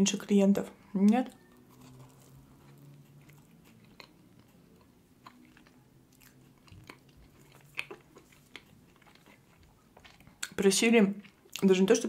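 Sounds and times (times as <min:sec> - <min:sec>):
faint chewing mouth clicks: 0:01.0 - 0:10.6.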